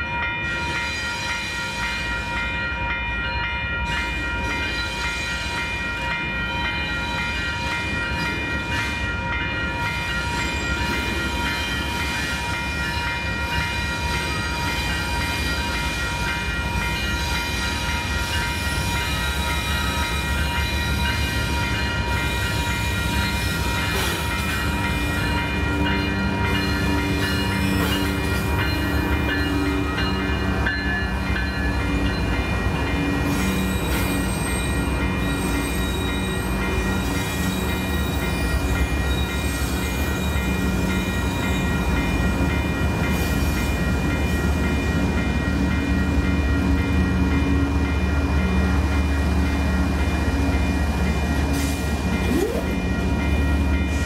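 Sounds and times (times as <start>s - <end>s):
train rumbling: 0.0s - 54.0s
lower tone: 52.2s - 53.0s
high whining tones: 52.2s - 53.1s.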